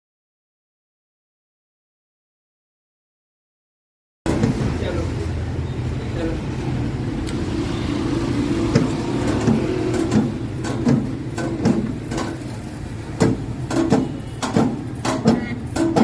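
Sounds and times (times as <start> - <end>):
sharp knocks: 8.7 - 16.0.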